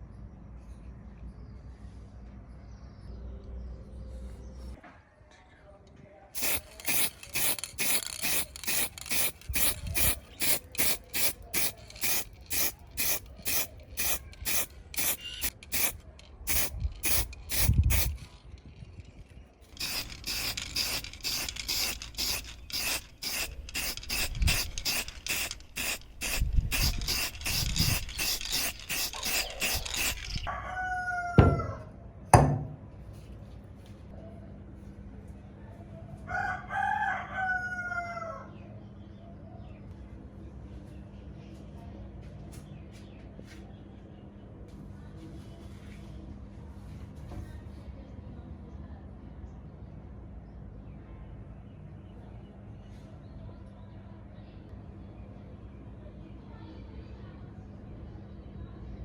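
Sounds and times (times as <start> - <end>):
rooster crowing: 30.5 - 31.9, 36.3 - 38.5.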